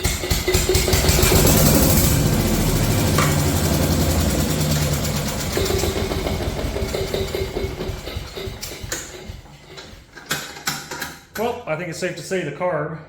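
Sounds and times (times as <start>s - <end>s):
small gasoline engine running: 0.0s - 9.5s.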